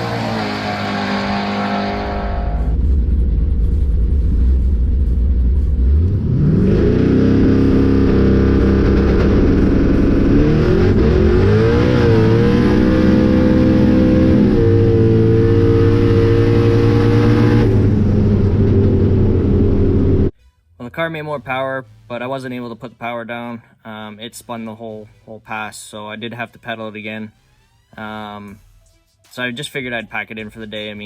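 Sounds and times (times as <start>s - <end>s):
drag car engine revving: 0.0s - 20.3s.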